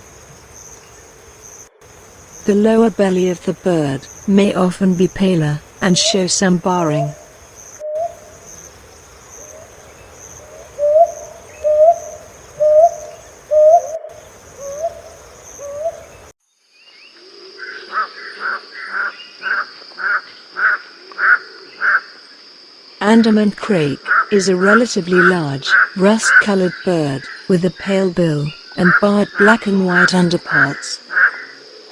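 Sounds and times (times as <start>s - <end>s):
bird sharp repeated calls: 0.0s - 16.3s
owl hooting: 0.0s - 16.3s
high insect drone: 0.0s - 18.8s.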